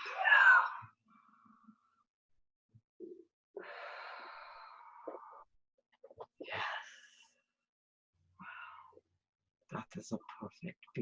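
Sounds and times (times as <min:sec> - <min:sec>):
person breathing: 0:08.4 - 0:09.0.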